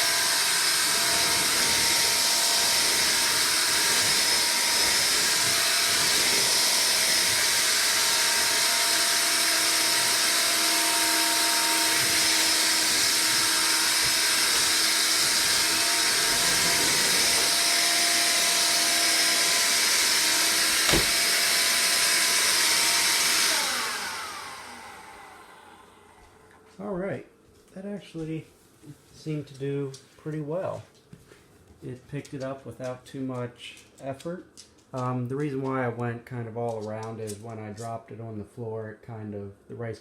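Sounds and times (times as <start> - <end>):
stick vacuum running: 0.0 - 26.6.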